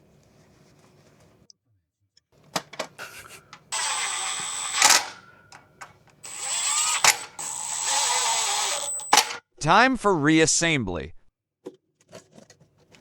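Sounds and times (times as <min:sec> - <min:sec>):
sharp clicks: 0:03.5 - 0:09.4
air tool hissing and whistling: 0:06.3 - 0:09.4.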